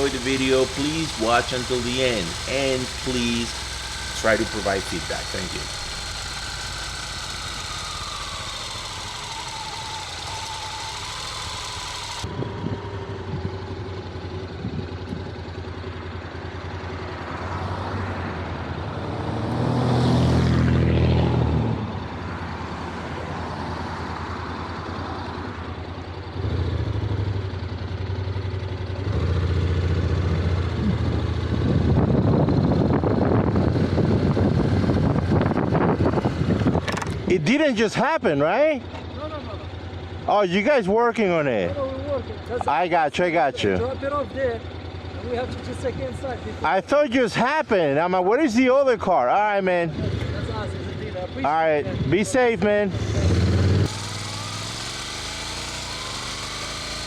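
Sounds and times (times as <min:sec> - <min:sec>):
motorcycle engine running: 0:00.0 - 0:57.0
wind noise: 0:30.8 - 0:37.3.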